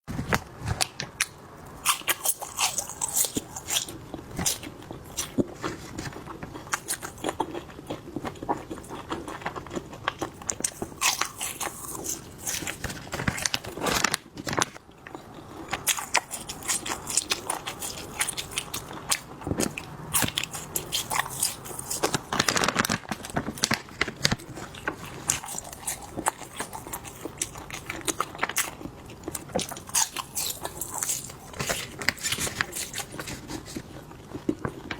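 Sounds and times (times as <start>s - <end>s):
chewing crunchy food: 0.1s - 34.9s.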